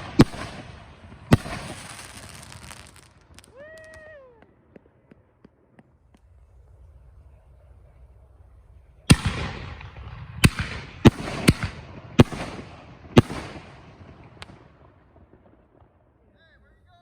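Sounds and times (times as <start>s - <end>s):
firework hiss: 0.0s - 4.2s
fireworks bangs: 0.0s - 16.4s.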